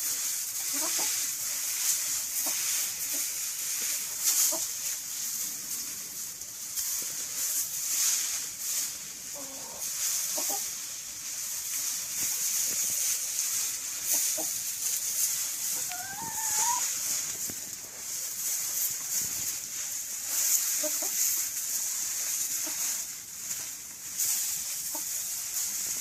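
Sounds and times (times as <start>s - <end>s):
chickens scratching in dry leaves: 0.0s - 26.0s
chickens clucking softly: 0.4s - 4.9s, 9.3s - 11.5s, 13.3s - 18.2s, 19.7s - 23.0s, 24.6s - 25.3s.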